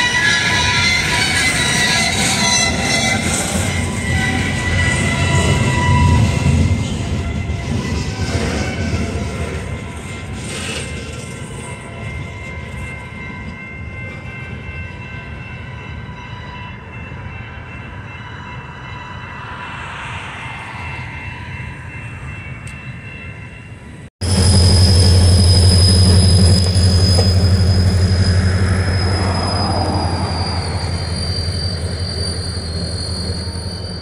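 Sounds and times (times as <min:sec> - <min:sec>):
freight train rumbling on rails: 0:00.0 - 0:34.0
thin wheel squeal: 0:24.3 - 0:34.0.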